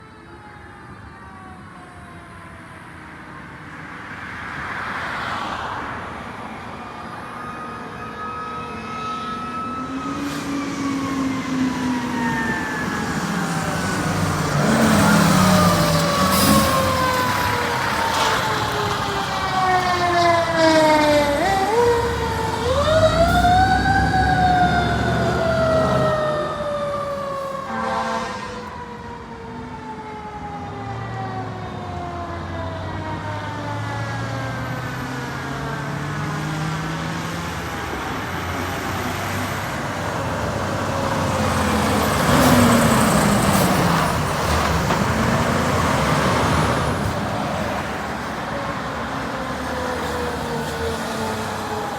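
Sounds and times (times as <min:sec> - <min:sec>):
fire truck siren winding: 0:07.4 - 0:33.9
diesel engines running: 0:08.8 - 0:28.7, 0:32.0 - 0:51.9.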